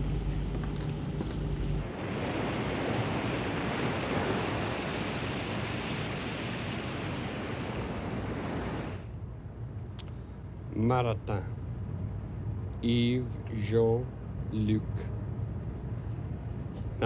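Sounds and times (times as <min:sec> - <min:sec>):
wind: 0:00.0 - 0:17.0
sea water washing: 0:01.8 - 0:09.1.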